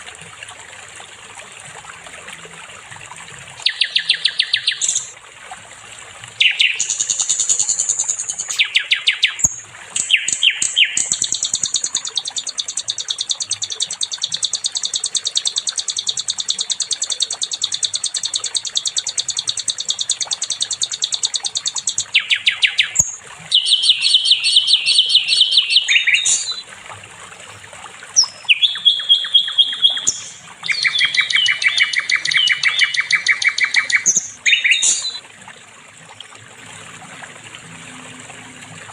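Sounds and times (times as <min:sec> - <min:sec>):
songbird singing rattling trills: 0:03.6 - 0:05.2, 0:06.4 - 0:26.6, 0:28.2 - 0:35.2.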